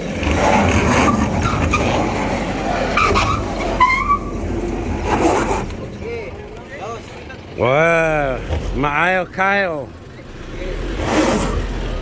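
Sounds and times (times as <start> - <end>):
car engine straining: 0.0 - 12.0
short squeals: 2.8 - 4.4.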